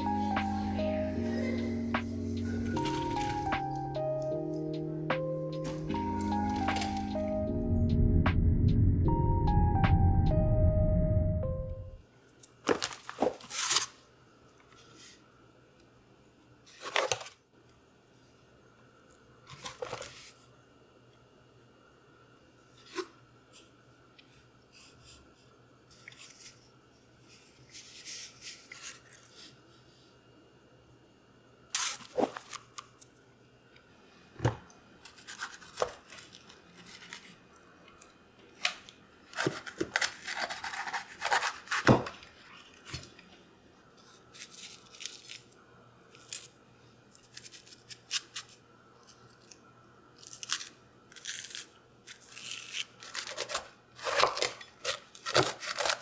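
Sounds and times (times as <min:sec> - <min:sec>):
rustling and crinkling: 0:12.6 - 0:14.0.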